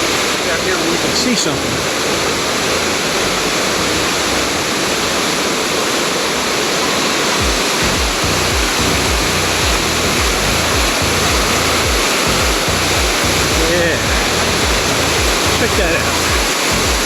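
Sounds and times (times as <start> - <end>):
waterfall rushing over rocks: 0.0 - 17.0
low thumps: 7.4 - 17.0.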